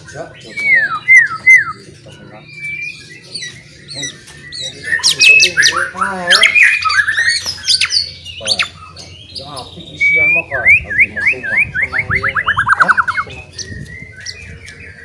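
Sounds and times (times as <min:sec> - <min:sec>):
bird singing whistles and squawks: 0:00.0 - 0:15.0.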